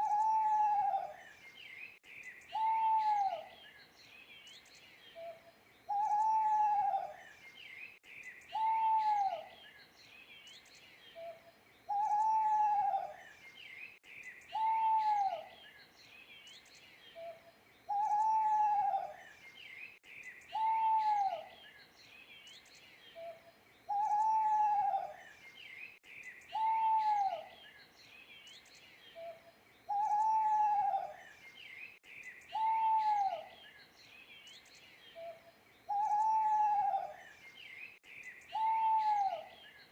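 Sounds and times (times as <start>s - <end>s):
owl hooting: 0.0s - 1.2s, 2.5s - 3.5s, 5.9s - 7.2s, 8.5s - 9.5s, 11.2s - 13.2s, 14.5s - 15.5s, 17.2s - 19.2s, 20.5s - 21.5s, 23.2s - 25.2s, 26.5s - 27.5s, 29.2s - 31.2s, 32.5s - 33.6s, 35.2s - 37.2s, 38.5s - 39.6s
small birds chirping: 0.0s - 39.9s.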